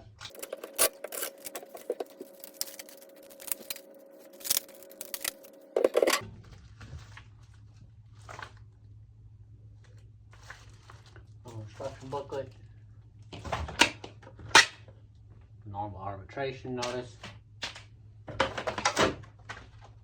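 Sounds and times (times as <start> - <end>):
packaging crinkling and tearing: 0.3 - 8.7.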